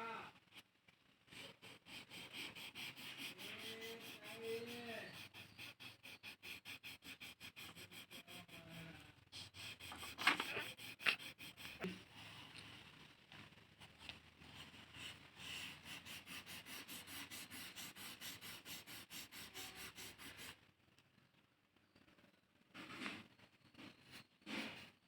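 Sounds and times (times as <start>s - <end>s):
crayon scratching on paper: 1.4s - 11.9s, 14.6s - 20.6s.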